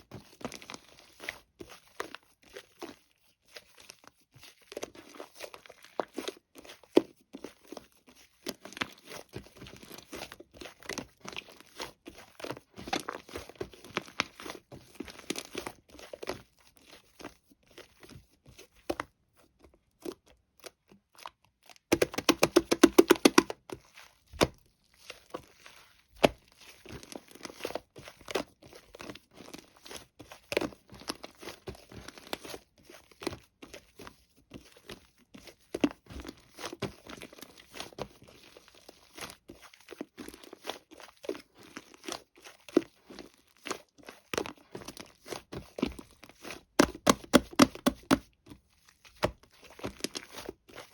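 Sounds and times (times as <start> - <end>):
slime squished by hand: 20.0 - 50.9.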